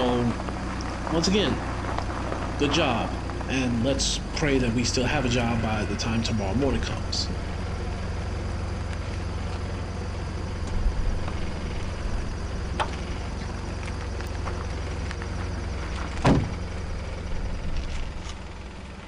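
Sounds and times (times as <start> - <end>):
car engine and road drone: 0.0 - 19.0
loud thump: 16.2 - 16.7.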